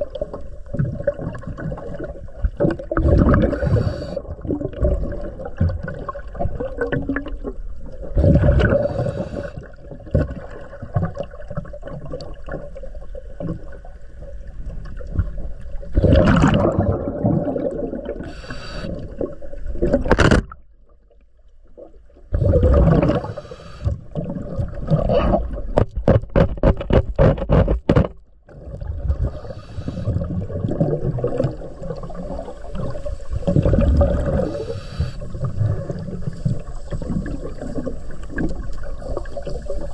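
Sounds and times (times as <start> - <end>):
diver breathing through regulator: 3.4 - 4.4, 8.2 - 9.7, 18.2 - 19.2, 22.4 - 24.0, 29.2 - 30.4, 33.0 - 37.2.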